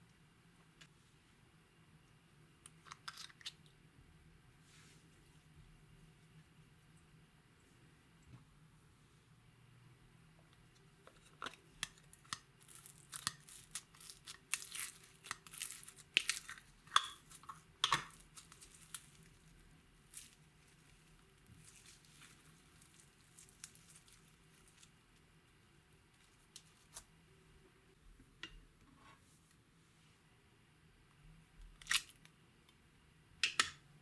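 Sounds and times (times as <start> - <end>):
slime crackling and popping: 11.8 - 24.9.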